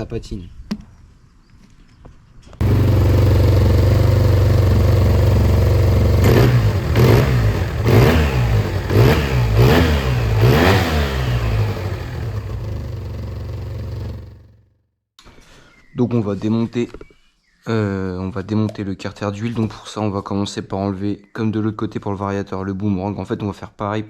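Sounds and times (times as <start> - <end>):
scooter engine idling and revving: 2.6 - 14.7.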